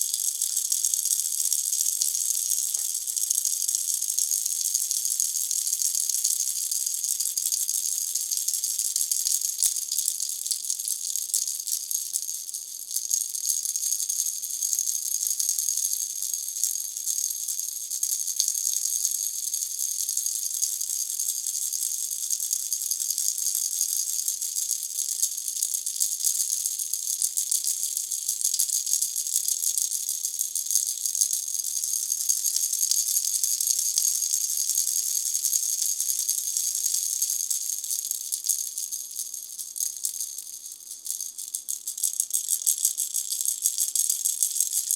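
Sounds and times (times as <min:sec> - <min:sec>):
baby rattle shaking: 0:38.3 - 0:44.9.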